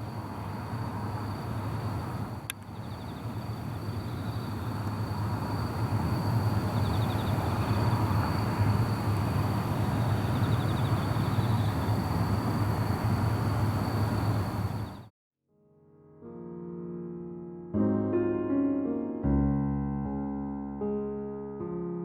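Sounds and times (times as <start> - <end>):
train rumbling: 0.0 - 15.1.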